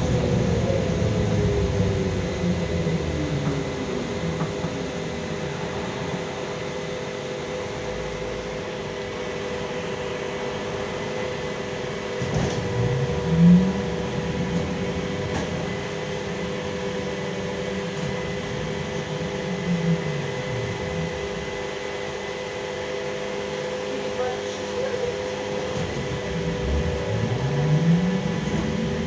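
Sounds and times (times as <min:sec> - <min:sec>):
trolleybus hum: 0:00.0 - 0:29.0.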